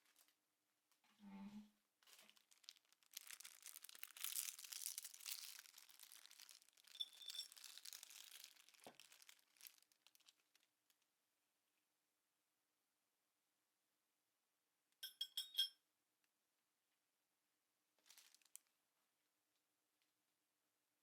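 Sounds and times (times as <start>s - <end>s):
crinkling and rustling by hand: 0.0s - 1.2s, 1.9s - 11.1s, 17.9s - 20.2s.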